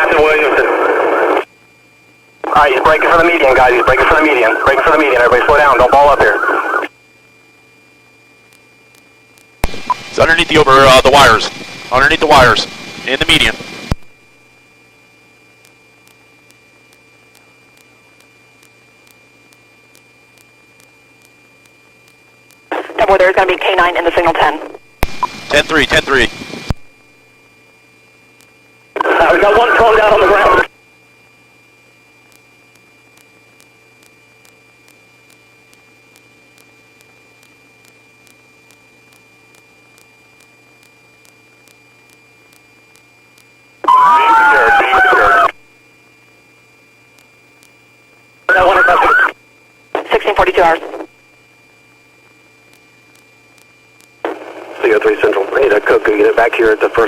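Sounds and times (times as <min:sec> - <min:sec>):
radio hiss and hum: 0:00.0 - 0:57.0
faint ticks: 0:32.3 - 0:43.5.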